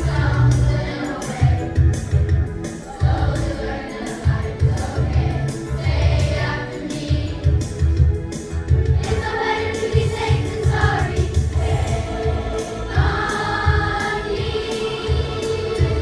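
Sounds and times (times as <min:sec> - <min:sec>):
children's choir singing: 0:00.0 - 0:08.1, 0:08.9 - 0:16.0
music with steady bass beat: 0:00.0 - 0:16.0.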